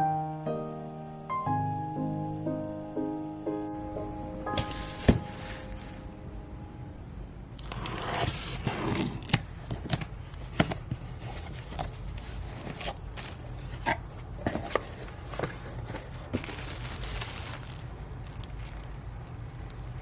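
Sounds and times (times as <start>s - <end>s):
scraping: 7.7s - 18.9s.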